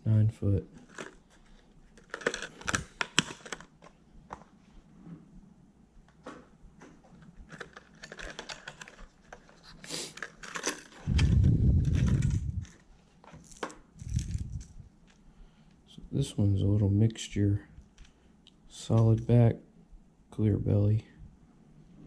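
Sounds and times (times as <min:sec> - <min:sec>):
plastic packaging crinkling: 0:00.8 - 0:04.0, 0:07.3 - 0:15.3
loud low rumble: 0:11.1 - 0:12.7.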